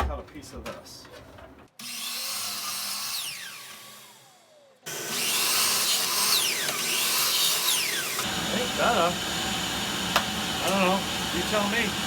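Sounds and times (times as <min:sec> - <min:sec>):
electric chop saw cutting: 0:01.8 - 0:12.0.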